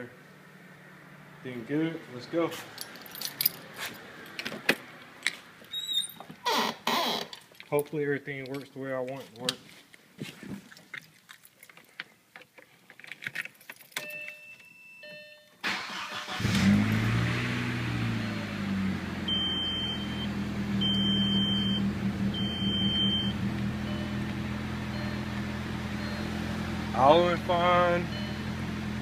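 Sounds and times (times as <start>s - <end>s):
car engine cranking and idling: 15.6s - 29.0s
dashboard chime: 22.4s - 26.4s, 27.3s - 28.6s.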